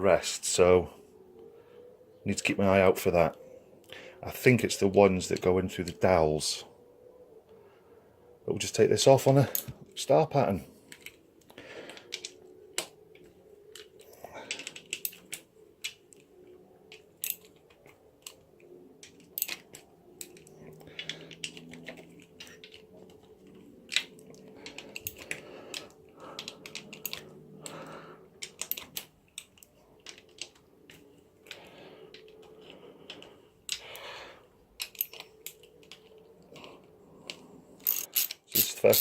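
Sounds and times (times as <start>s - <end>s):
metallic clicks of hand tools: 13.7s - 16.2s, 16.9s - 18.4s, 19.0s - 27.8s, 28.4s - 34.0s, 34.8s - 36.7s, 37.3s - 39.0s.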